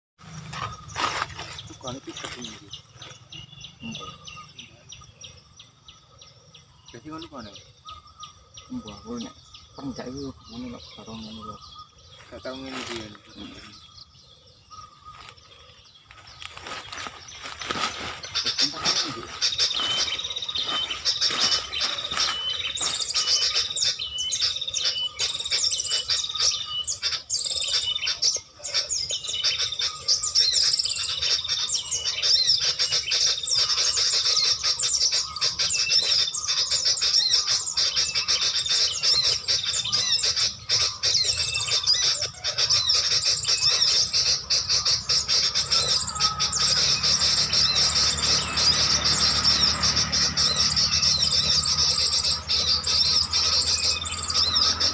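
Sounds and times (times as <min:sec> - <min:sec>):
small birds chirping: 0:00.2 - 0:54.9.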